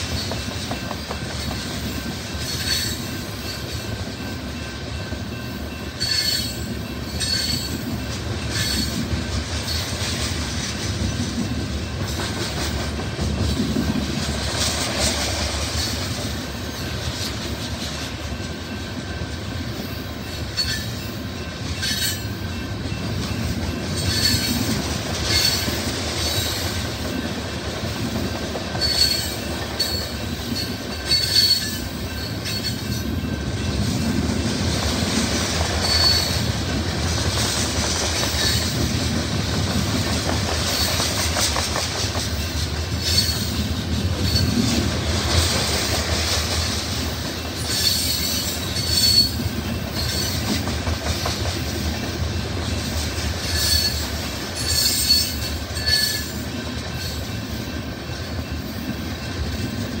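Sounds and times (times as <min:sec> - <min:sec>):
freight train wheels rumbling: 0:00.0 - 1:00.0
high-pitched wheel squeals: 0:02.4 - 0:04.4, 0:05.3 - 0:09.1, 0:20.2 - 0:22.6, 0:24.0 - 0:26.6, 0:28.8 - 0:33.4, 0:35.8 - 0:36.6, 0:42.4 - 0:44.8, 0:47.6 - 0:50.6, 0:53.4 - 0:57.6.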